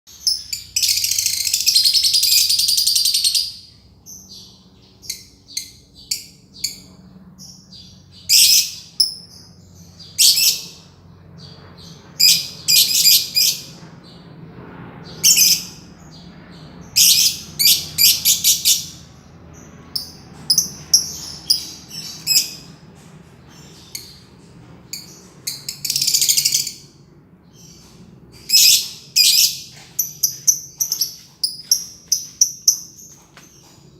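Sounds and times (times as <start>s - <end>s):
lovebird chattering and trilling: 15.2s - 22.7s, 28.4s - 33.2s.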